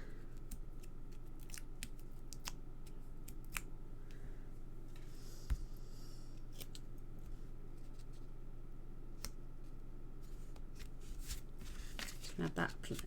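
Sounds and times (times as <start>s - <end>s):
paper and card rustling: 10.2s - 13.0s.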